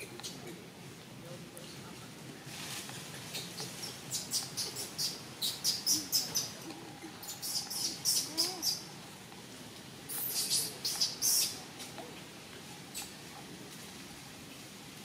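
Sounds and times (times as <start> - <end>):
faint low bird calls: 3.2 - 9.1, 10.0 - 11.8
small bird chirping: 3.3 - 8.9, 10.1 - 11.6.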